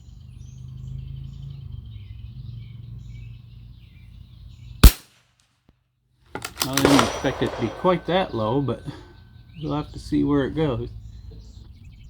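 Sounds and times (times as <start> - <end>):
rifle shot: 4.8 - 5.1, 6.4 - 9.0.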